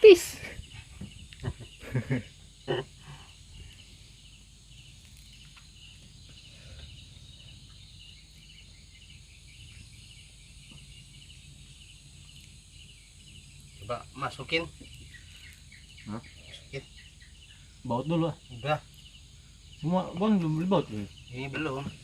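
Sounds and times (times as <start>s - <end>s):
crickets chirping: 0.0s - 22.0s
low background hum: 0.0s - 22.0s.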